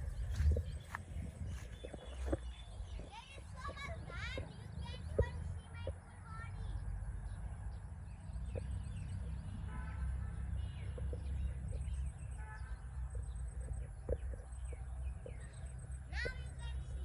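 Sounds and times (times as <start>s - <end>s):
low microphone rumble: 0.0s - 9.6s.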